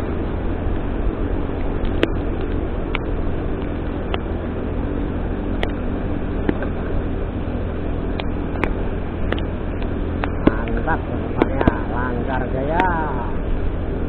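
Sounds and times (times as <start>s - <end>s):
vehicle engine and road rumble: 0.0s - 14.0s
sharp little ticks: 1.6s - 4.3s, 5.5s - 5.8s, 8.1s - 13.0s.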